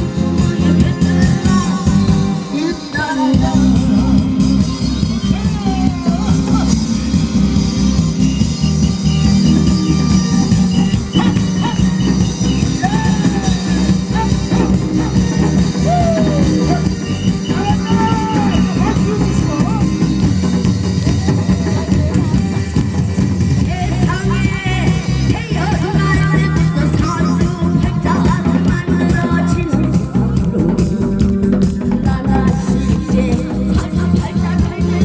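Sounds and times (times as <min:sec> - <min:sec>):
backing track with steady beat: 0:00.0 - 0:35.0
drum strokes: 0:03.3 - 0:35.0
woman singing folk-style song: 0:23.7 - 0:35.0.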